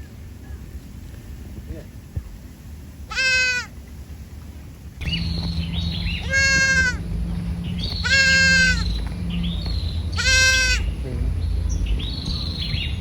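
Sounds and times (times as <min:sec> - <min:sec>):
young animal bleating: 0:03.1 - 0:03.7, 0:06.0 - 0:07.1, 0:07.7 - 0:09.0, 0:10.0 - 0:11.4
low hum: 0:03.8 - 0:13.0
faint high chirping: 0:05.0 - 0:13.0.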